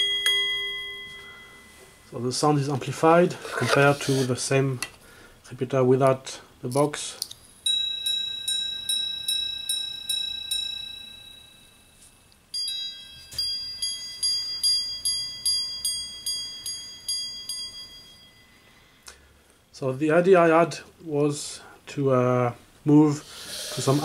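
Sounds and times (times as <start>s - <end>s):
watch chime ringing notes: 0.0s - 2.3s, 7.6s - 18.9s.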